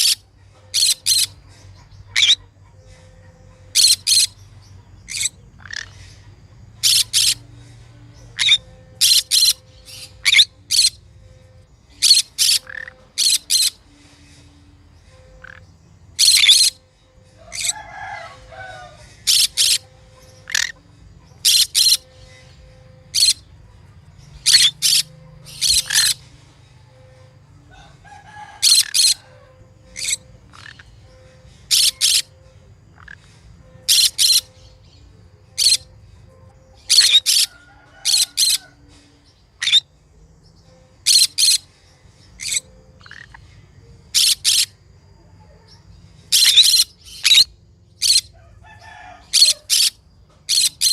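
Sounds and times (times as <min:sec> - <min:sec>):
parrot chattering: 0:00.0 - 0:04.4, 0:06.8 - 0:07.4, 0:08.3 - 0:11.0, 0:12.0 - 0:13.8, 0:16.2 - 0:16.8, 0:17.5 - 0:20.8, 0:21.4 - 0:22.3, 0:23.1 - 0:23.5, 0:24.4 - 0:26.2, 0:29.9 - 0:32.3, 0:33.0 - 0:34.6, 0:36.9 - 0:38.6, 0:41.1 - 0:41.7
parrot screeching calls: 0:02.1 - 0:02.5, 0:03.7 - 0:04.4, 0:06.8 - 0:07.4, 0:08.4 - 0:11.0, 0:12.0 - 0:13.8, 0:16.2 - 0:16.8, 0:17.4 - 0:19.8, 0:21.4 - 0:22.1, 0:23.1 - 0:23.4, 0:24.4 - 0:26.2, 0:27.8 - 0:30.9, 0:31.7 - 0:32.3, 0:33.8 - 0:34.5, 0:36.9 - 0:38.8, 0:46.3 - 0:50.9.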